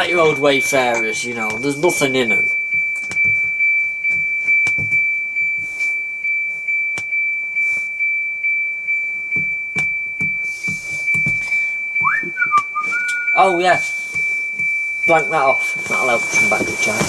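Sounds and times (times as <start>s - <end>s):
low pulsing beat: 9.4s - 13.4s
high-pitched electronic tone: 12.0s - 13.8s.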